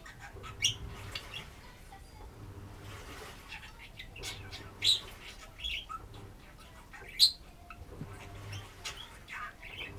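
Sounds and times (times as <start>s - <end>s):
budgerigar chattering and chirping: 0.0s - 1.5s, 3.7s - 9.9s.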